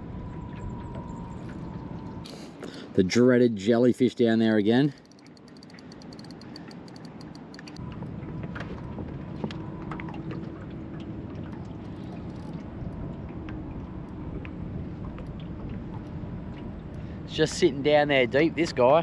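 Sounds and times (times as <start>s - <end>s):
fishing reel clicking: 4.8s - 7.8s.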